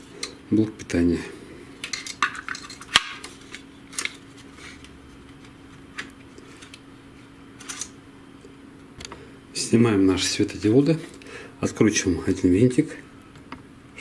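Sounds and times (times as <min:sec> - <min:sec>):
faint steady hum: 0:00.0 - 0:14.0
plastic parts clicking and clinking: 0:01.8 - 0:04.2.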